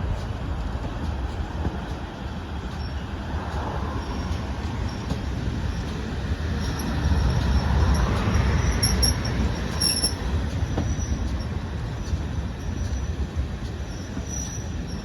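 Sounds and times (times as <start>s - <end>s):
train rumbling: 0.0s - 15.0s
wheel squeals on rails: 3.9s - 15.0s.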